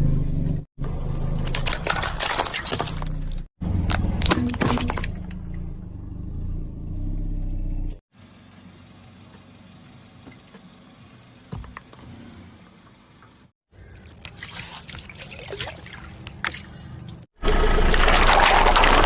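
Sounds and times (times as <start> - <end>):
car engine running: 5.2 - 13.5
tyre crushing objects: 17.7 - 19.0.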